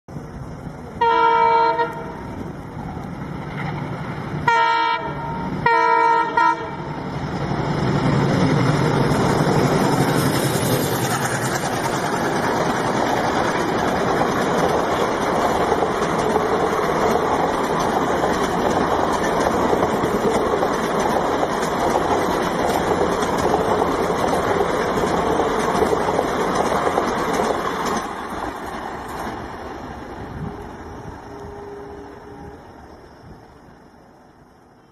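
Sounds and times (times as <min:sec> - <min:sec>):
train wheels on rails rushing: 0:00.1 - 0:34.9
locomotive horn blasts: 0:01.0 - 0:02.2, 0:04.4 - 0:06.9, 0:31.3 - 0:32.7.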